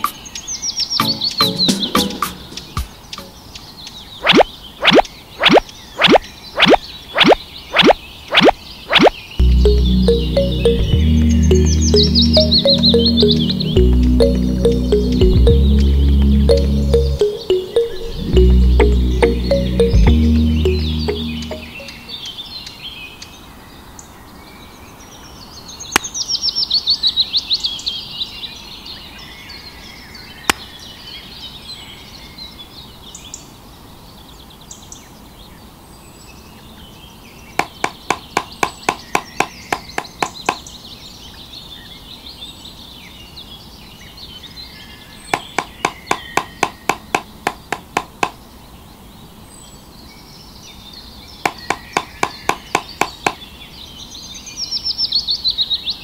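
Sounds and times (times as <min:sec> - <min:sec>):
birdsong: 0:00.0 - 0:23.0.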